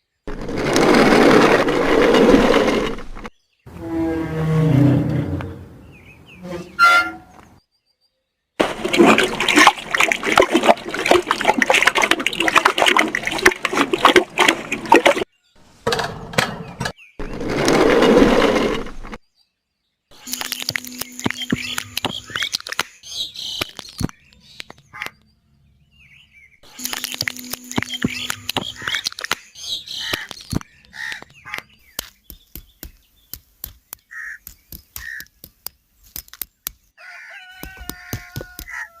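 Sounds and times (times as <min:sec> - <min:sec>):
water splashing from hand pump: 0:00.3 - 0:03.2, 0:08.6 - 0:15.3, 0:17.2 - 0:19.2, 0:37.6 - 0:38.9
sharp clicks and taps: 0:30.1 - 0:36.9, 0:37.6 - 0:38.8
short bird calls: 0:34.1 - 0:35.3.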